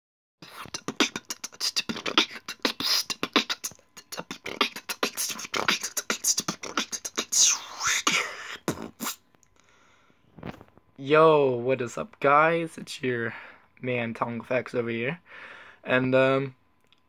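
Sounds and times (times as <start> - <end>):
sweeping vocal effect: 0.4 - 9.0
person beatboxing: 0.4 - 9.2.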